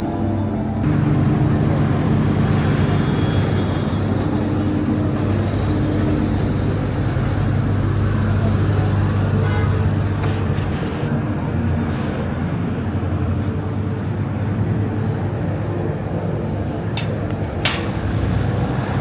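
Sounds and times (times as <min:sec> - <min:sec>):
car engine humming: 0:00.0 - 0:10.8
street background noise: 0:00.0 - 0:19.0.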